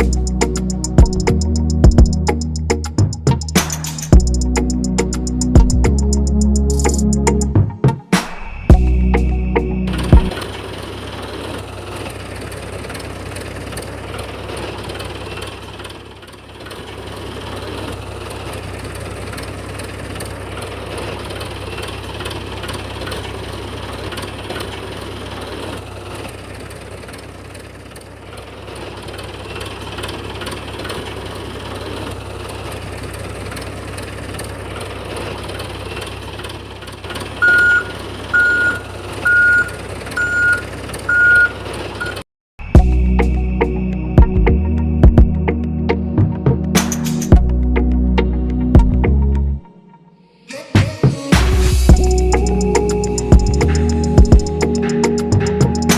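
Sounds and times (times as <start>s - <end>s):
repeating electronic beep: 8.5s - 10.4s, 37.4s - 45.4s.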